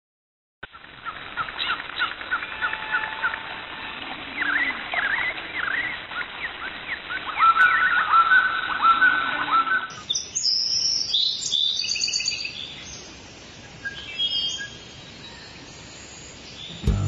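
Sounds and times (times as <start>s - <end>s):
loud repeated sweeping bird notes: 16.2s - 17.0s.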